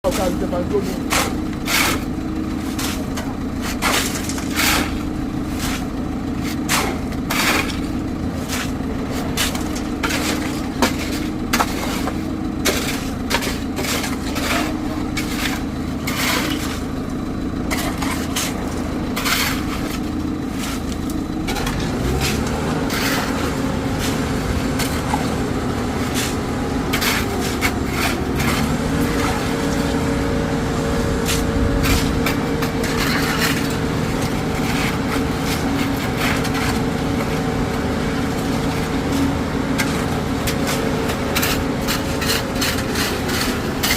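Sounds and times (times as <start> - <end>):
machinery engine running: 0.0 - 43.9
concreting knocks and scrapes: 0.1 - 17.0, 17.7 - 30.1, 31.1 - 43.9.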